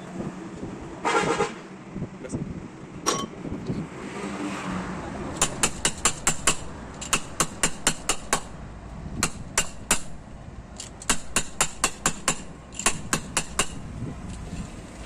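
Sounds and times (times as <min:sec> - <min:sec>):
hammer striking metal: 0:05.4 - 0:08.6, 0:09.2 - 0:10.2, 0:11.0 - 0:13.8.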